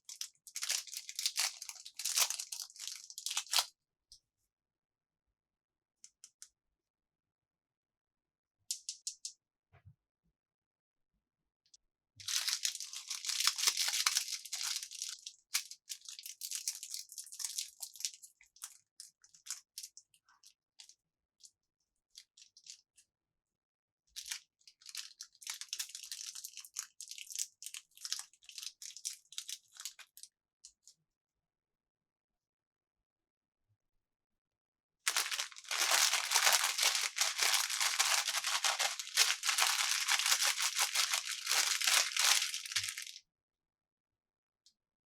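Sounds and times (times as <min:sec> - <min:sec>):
plastic packaging crinkling: 0:00.0 - 0:03.7, 0:12.3 - 0:15.2, 0:35.1 - 0:43.2.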